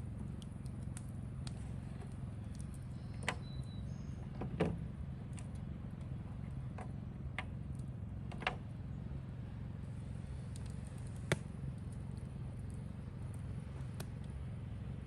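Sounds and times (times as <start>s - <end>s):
steady low rumble: 0.0s - 15.0s
sharp clicks and knocks: 6.7s - 8.7s.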